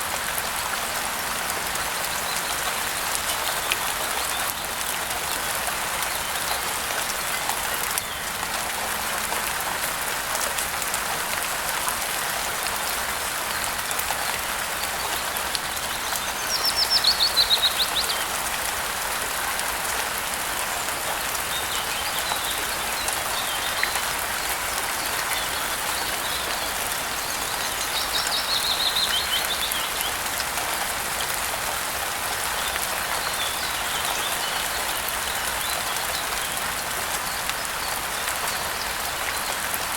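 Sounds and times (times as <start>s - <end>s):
songbird singing: 14.8s - 18.4s, 21.4s - 30.3s, 32.6s - 39.6s.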